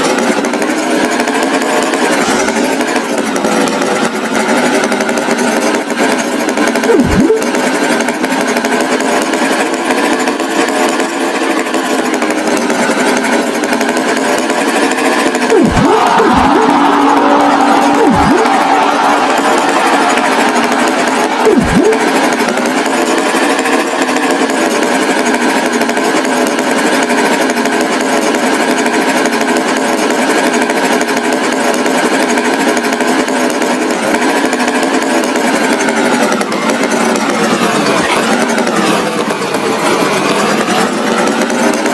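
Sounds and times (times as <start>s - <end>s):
buzzing motor noise: 0.0s - 27.0s
swooping glide: 15.5s - 22.6s.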